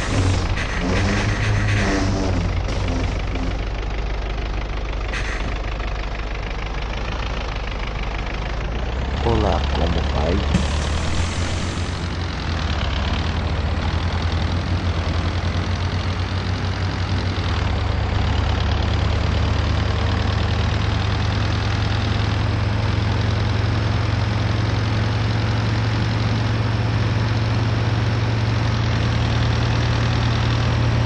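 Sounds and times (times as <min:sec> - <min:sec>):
bus diesel engine drone: 0:00.0 - 0:31.0.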